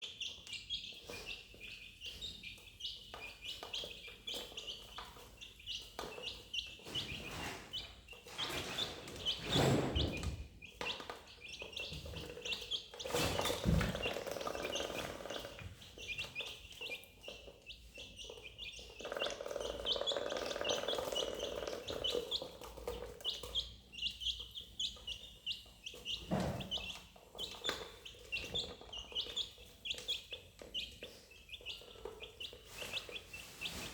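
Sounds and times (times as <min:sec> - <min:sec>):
duckling peeping: 0:00.0 - 0:33.9
rustling and knocking: 0:11.8 - 0:16.0.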